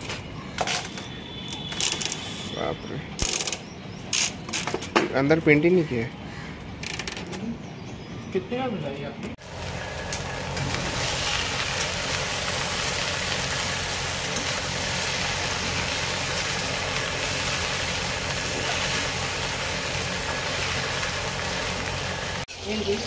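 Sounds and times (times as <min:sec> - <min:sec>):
okra sizzling in a pan: 0:09.4 - 0:23.0.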